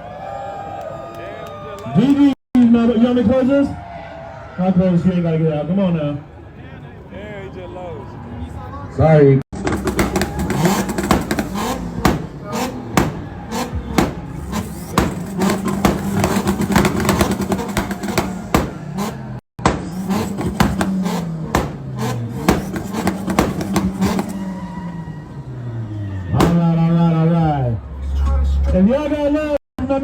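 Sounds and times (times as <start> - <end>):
exhaust popping and crackling: 9.5 - 27.2
car engines revving: 9.6 - 29.0.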